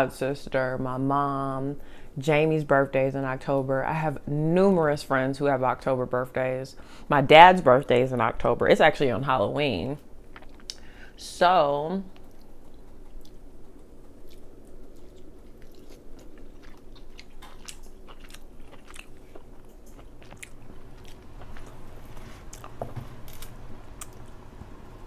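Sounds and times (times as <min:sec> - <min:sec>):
wet chewing of crab: 0:10.1 - 0:11.1, 0:12.1 - 0:25.0.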